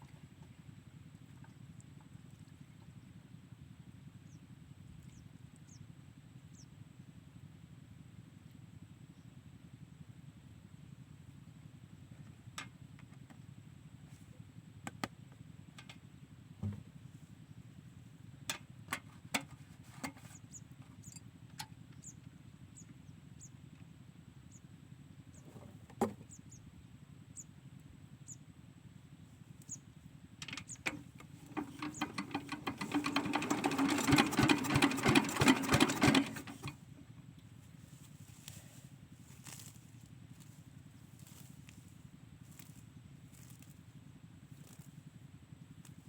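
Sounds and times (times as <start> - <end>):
diesel engine cranking: 30.4 - 36.8.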